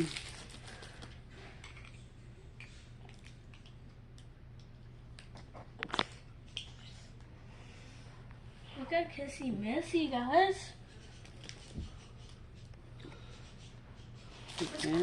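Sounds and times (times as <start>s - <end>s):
plastic packaging crinkling: 0.0s - 1.1s
low steady hum: 0.0s - 15.0s.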